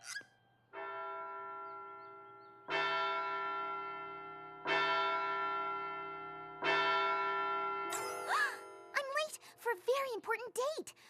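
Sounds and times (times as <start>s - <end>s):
large bell tolling: 0.8s - 9.2s.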